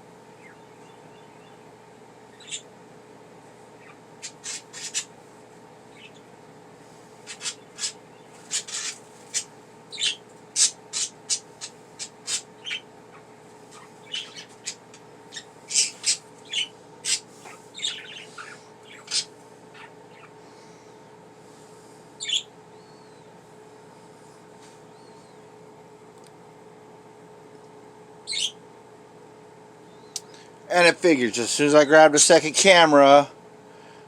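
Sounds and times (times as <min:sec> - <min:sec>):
faint steady hum: 0:00.0 - 0:34.0
budgerigars chirping: 0:00.4 - 0:01.6, 0:02.3 - 0:02.7, 0:03.8 - 0:05.1, 0:05.9 - 0:06.2, 0:07.2 - 0:20.4, 0:22.2 - 0:23.3, 0:28.2 - 0:28.6.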